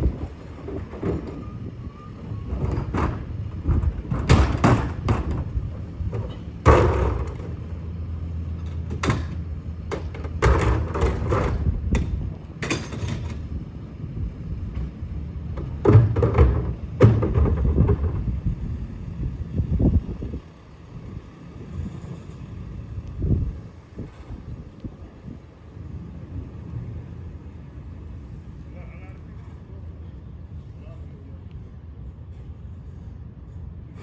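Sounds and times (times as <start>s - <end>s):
garbage truck running: 0.0s - 28.6s
bangs and thuds: 2.5s - 7.6s, 15.6s - 18.4s.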